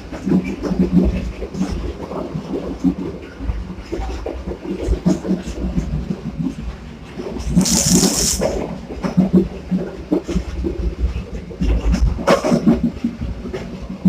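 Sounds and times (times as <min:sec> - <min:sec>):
train low rumble: 0:08.8 - 0:14.0.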